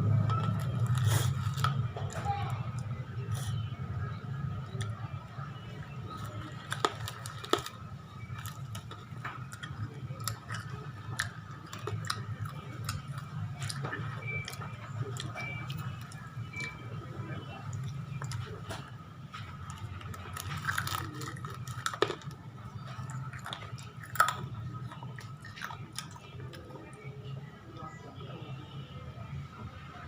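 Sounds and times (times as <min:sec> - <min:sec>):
chips being chewed: 0:00.0 - 0:03.6, 0:05.8 - 0:27.0
steady low hum: 0:00.0 - 0:30.0.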